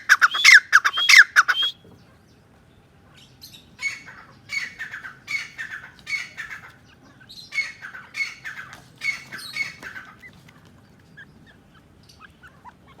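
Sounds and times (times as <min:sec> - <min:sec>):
bird harsh calls: 0:00.0 - 0:02.1, 0:03.3 - 0:10.4
bird chirps: 0:00.0 - 0:02.2, 0:03.2 - 0:10.4.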